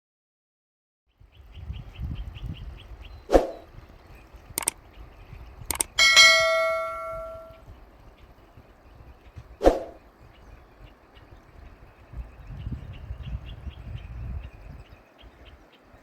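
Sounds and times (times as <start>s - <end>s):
faint rapid ticking: 3.9s - 5.0s, 5.6s - 6.3s
clicks: 5.7s - 7.5s
bell ringing: 5.7s - 7.6s.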